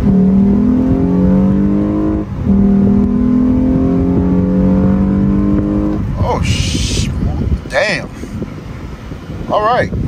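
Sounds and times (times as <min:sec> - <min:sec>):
car engine accelerating hard: 0:00.0 - 0:07.0.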